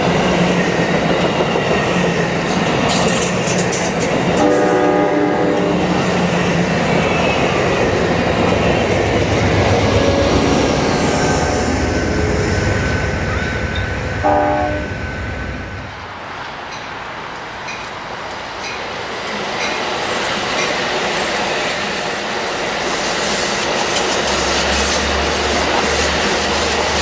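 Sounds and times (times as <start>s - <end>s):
wheels clicking over rail joints: 0.0s - 4.9s, 17.6s - 27.0s
train rumble: 0.0s - 27.0s
train horn blast: 4.4s - 6.0s, 9.8s - 11.7s, 14.2s - 15.0s.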